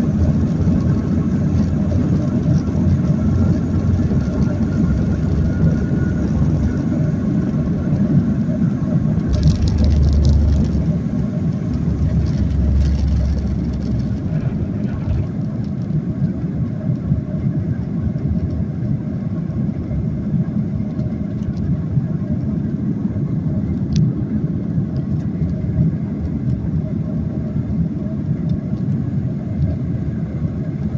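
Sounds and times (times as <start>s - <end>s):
airplane engines rumbling in cabin: 0.0s - 30.9s.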